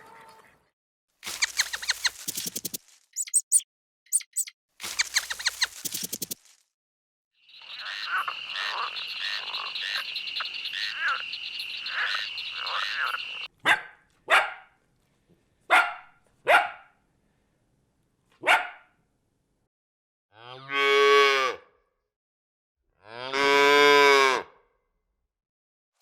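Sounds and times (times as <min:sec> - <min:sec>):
frogs croaking in a chorus: 0:07.4 - 0:13.5
dog barking: 0:13.6 - 0:14.8, 0:15.7 - 0:17.0, 0:18.4 - 0:18.9.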